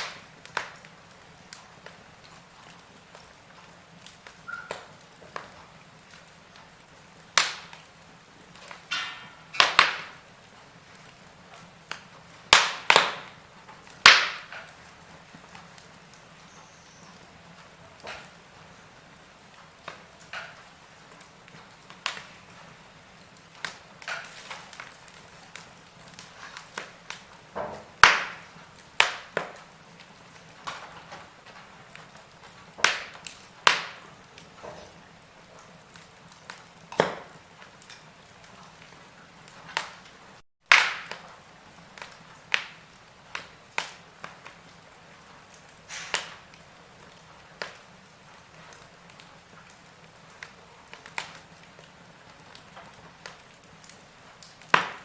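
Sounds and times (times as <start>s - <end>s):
faint steady hiss: 0.0s - 55.0s
fire popping: 0.0s - 55.0s
wood fire crackling: 0.0s - 55.0s.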